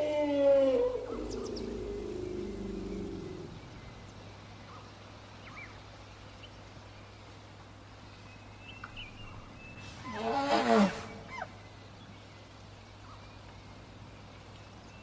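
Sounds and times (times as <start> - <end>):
deep animal call: 0.0 - 4.1, 9.9 - 11.5
low steady hum: 0.0 - 4.8.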